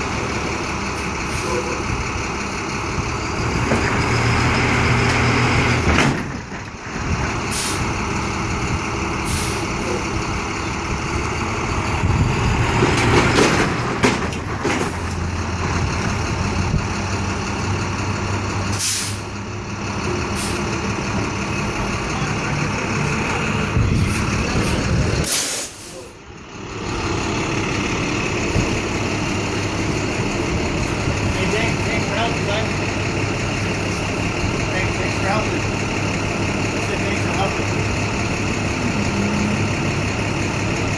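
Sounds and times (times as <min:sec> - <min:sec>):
truck engine running: 0:00.0 - 0:40.9
air brake hisses: 0:07.5 - 0:07.8, 0:09.2 - 0:09.7, 0:18.7 - 0:19.3, 0:25.2 - 0:26.1.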